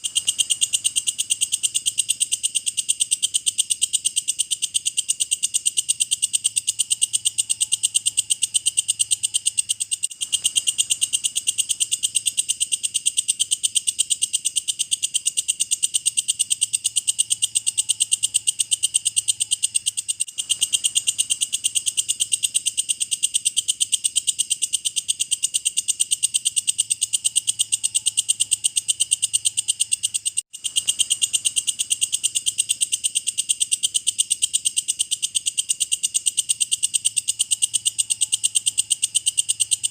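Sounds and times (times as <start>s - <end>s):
insect clicking call: 0.0s - 39.9s.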